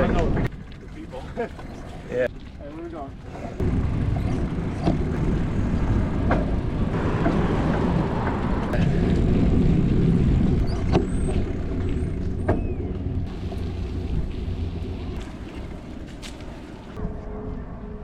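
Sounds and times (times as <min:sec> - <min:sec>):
road traffic rumble: 0:03.2 - 0:17.0.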